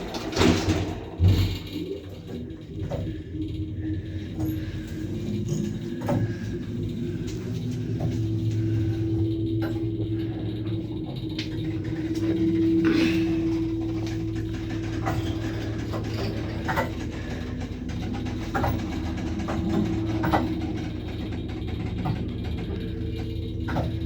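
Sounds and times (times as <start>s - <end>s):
lift motor humming and whining: 0.0s - 24.0s.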